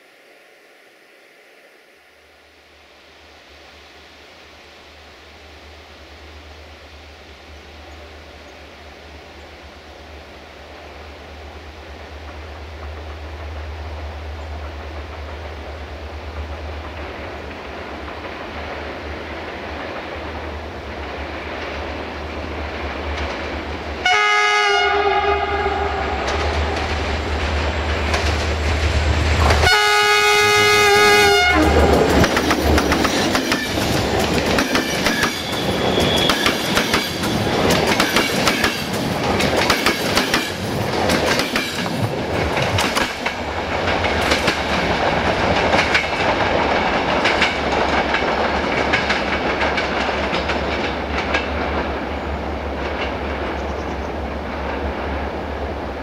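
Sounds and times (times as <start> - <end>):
locomotive multi-tone horn: 24.0 - 26.8, 29.5 - 32.0, 35.3 - 36.7
train wheels clacking over joints: 31.6 - 52.0.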